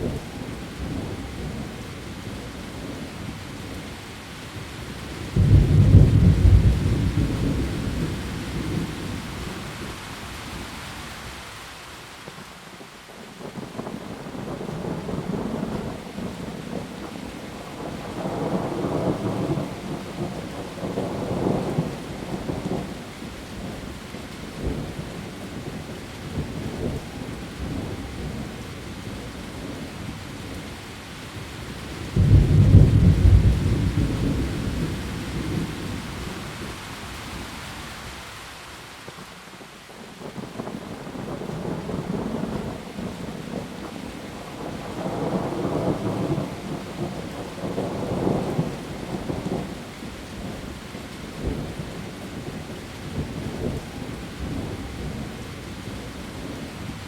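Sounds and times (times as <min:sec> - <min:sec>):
heavy rain on foliage: 0:00.0 - 0:57.0
rolling thunder: 0:05.3 - 0:09.9, 0:32.0 - 0:36.8, 0:44.5 - 0:50.6
loud thunderclap: 0:05.4 - 0:08.9, 0:32.1 - 0:36.0.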